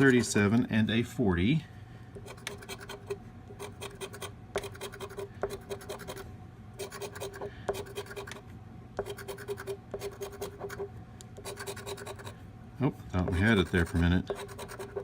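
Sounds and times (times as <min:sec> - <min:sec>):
lottery ticket being scratched: 0:02.2 - 0:06.2, 0:06.8 - 0:08.4, 0:09.0 - 0:12.4, 0:13.2 - 0:15.0.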